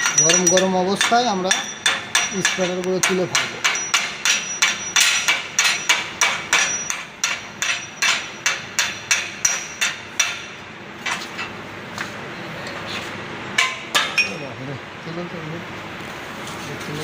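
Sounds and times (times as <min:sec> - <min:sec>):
hammer striking steel plate: 0:00.0 - 0:11.2.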